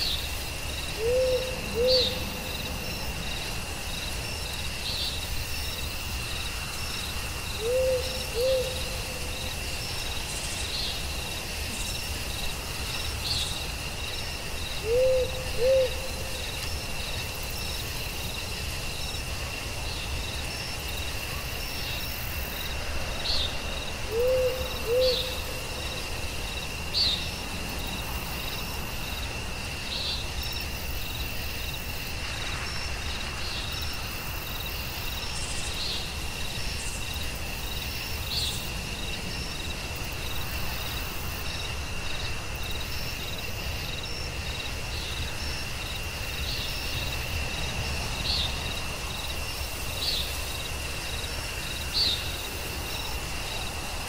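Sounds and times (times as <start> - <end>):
crickets and insects chorus: 0.0 - 54.0
owl hooting: 1.0 - 2.2, 7.6 - 9.2, 14.8 - 16.3, 24.1 - 25.4.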